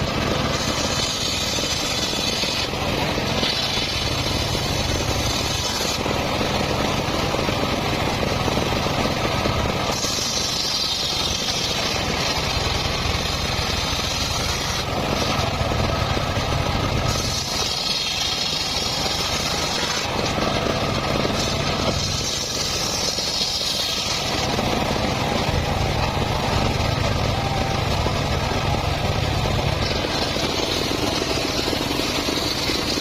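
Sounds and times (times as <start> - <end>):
circular saw cutting wood: 0.0 - 33.0.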